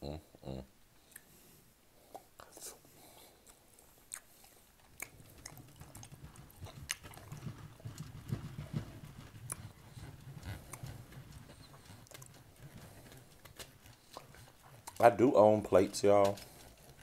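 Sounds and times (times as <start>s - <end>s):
chewing with mouth clicks: 3.4s - 8.0s, 9.5s - 15.1s.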